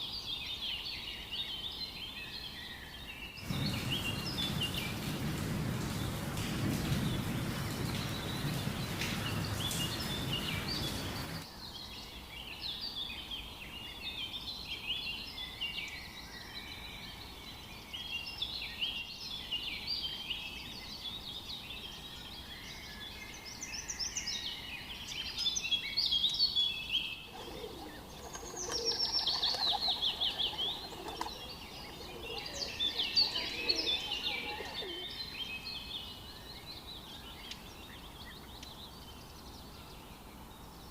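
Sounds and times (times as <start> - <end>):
songbirds chirping and singing: 7.1 - 40.9
rapid falling bird trill: 27.3 - 35.1.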